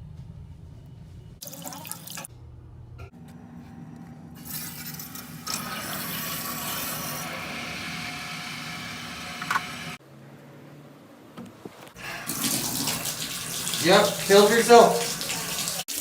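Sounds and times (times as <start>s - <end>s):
water running: 1.4s - 2.3s, 4.4s - 10.0s, 12.0s - 16.0s.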